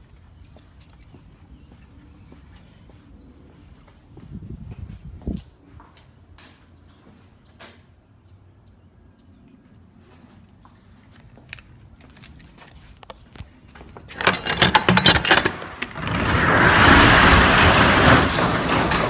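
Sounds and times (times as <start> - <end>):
metal latch rattling and clicking: 13.8 - 19.0
roll-up door sliding with metallic rattle: 14.0 - 19.0.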